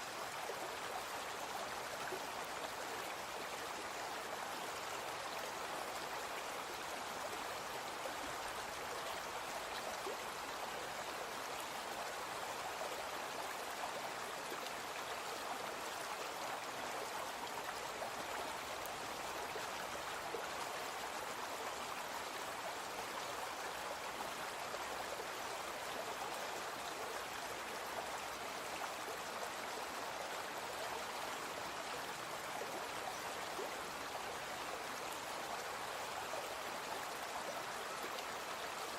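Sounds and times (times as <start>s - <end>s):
brook flowing: 0.0s - 38.9s.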